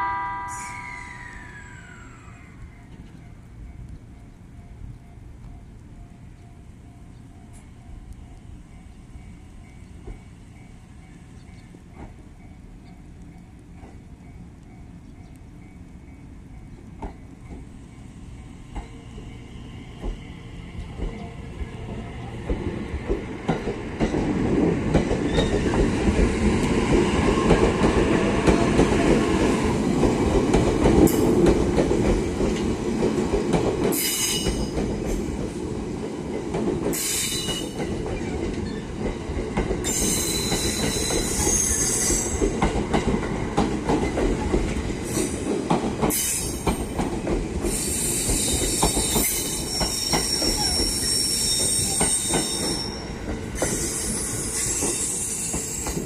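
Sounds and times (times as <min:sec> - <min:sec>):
high-pitched wheel squeals: 0:00.0 - 0:02.6, 0:39.8 - 0:42.4, 0:47.8 - 0:55.9
train wheels rumbling: 0:00.0 - 0:56.0.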